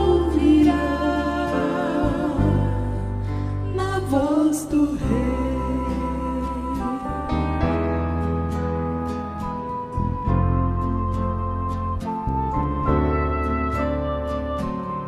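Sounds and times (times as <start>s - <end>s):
sustained instrumental chords: 0.0s - 4.1s, 5.0s - 15.0s
gospel singing: 0.0s - 8.1s
steady bass line: 0.0s - 15.0s.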